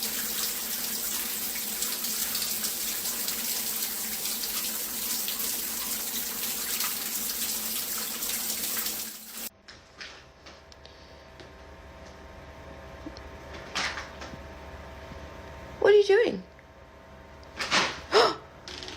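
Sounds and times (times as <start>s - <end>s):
running water: 0.0s - 9.5s.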